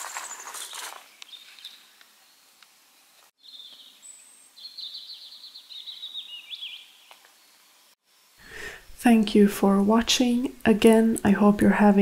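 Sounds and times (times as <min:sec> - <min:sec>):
faint outdoor background: 0:00.0 - 0:12.0
songbird trills and chirps: 0:03.4 - 0:07.9.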